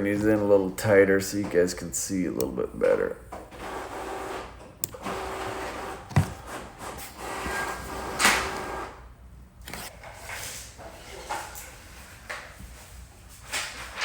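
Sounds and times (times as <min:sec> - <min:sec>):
printer whirring: 0:03.5 - 0:09.0.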